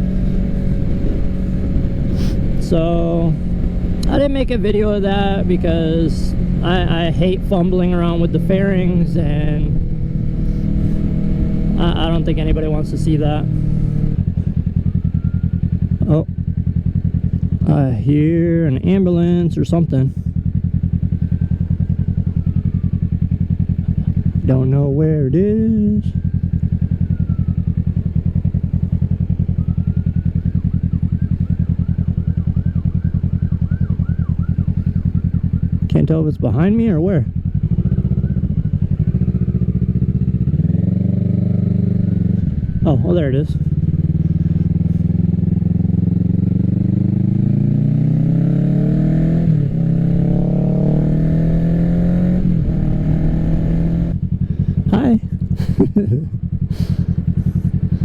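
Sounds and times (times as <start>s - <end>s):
motorcycle engine idling: 0.0s - 58.0s
faint siren: 13.8s - 16.7s, 20.7s - 23.8s, 25.9s - 36.1s, 37.3s - 43.7s.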